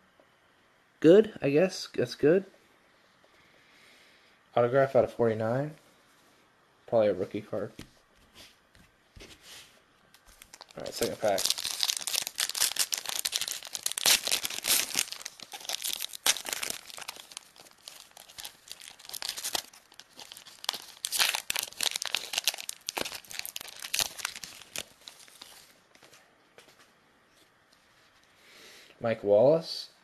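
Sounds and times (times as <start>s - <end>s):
plastic wrapper crinkling and tearing: 10.1s - 25.8s.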